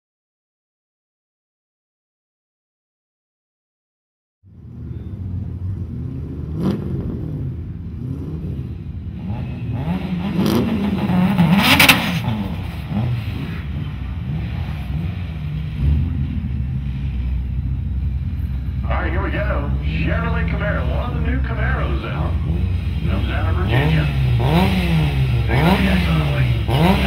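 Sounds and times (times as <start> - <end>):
second car engine running: 4.5 - 27.0
car engine revving: 4.6 - 27.0
sharp bursts of engine noise: 5.2 - 16.3, 18.8 - 27.0.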